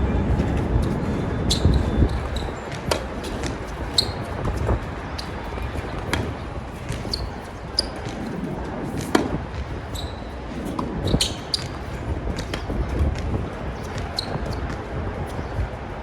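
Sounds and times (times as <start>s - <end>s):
wind rumbling on microphone: 0.0s - 16.0s
shoe squeaks: 0.3s - 15.7s
tennis ball bouncing: 1.5s - 9.3s.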